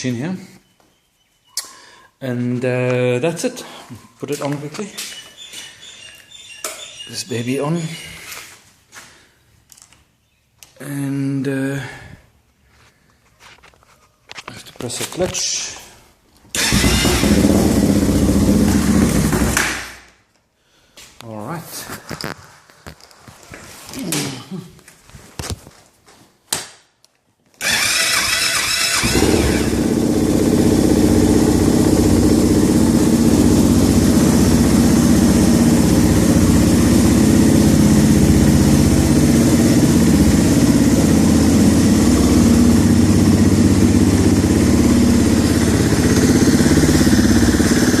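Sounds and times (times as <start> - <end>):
motorcycle engine starting and idling: 16.5 - 20.1, 27.6 - 48.0.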